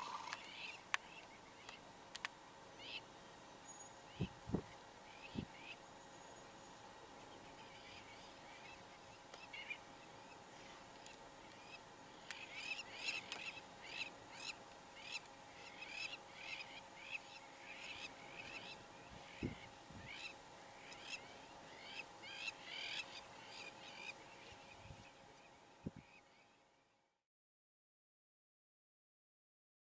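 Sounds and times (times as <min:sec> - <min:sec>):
birds making harsh calls: 0:00.0 - 0:00.8
faint steady hum: 0:00.0 - 0:27.2.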